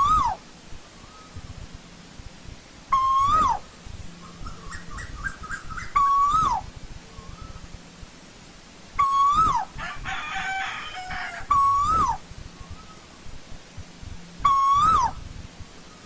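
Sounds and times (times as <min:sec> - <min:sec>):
bird whistled call: 0:00.0 - 0:00.4, 0:01.0 - 0:01.4, 0:02.9 - 0:07.7, 0:09.0 - 0:09.7, 0:11.5 - 0:13.0, 0:14.4 - 0:15.2.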